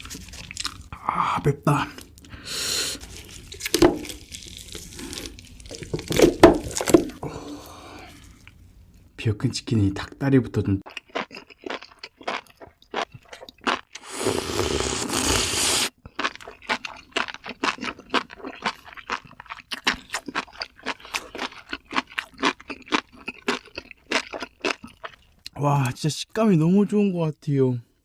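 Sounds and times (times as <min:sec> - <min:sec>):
crunching fried chicken: 0:00.0 - 0:00.9, 0:03.0 - 0:07.2, 0:10.9 - 0:25.5.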